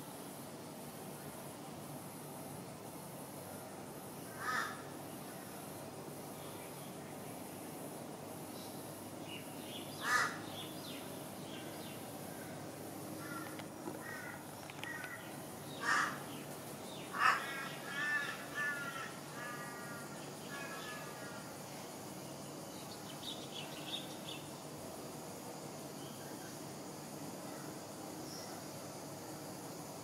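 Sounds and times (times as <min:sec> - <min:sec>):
bird cawing: 0:04.3 - 0:04.9, 0:10.0 - 0:10.5, 0:13.2 - 0:16.4, 0:17.1 - 0:21.4.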